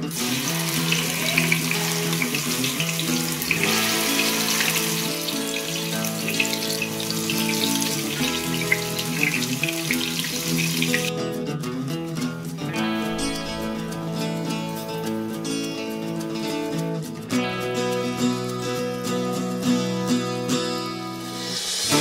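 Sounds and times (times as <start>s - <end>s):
paste sizzling in hot oil: 0.0s - 11.1s
background music: 0.0s - 22.0s.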